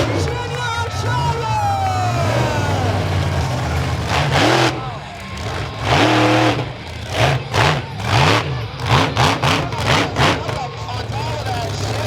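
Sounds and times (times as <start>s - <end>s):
loud truck engine running: 0.0s - 12.0s.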